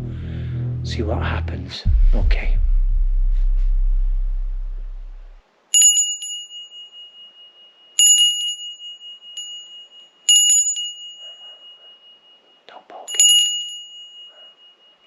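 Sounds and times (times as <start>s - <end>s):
metal hand bell ringing: 5.8s - 15.0s.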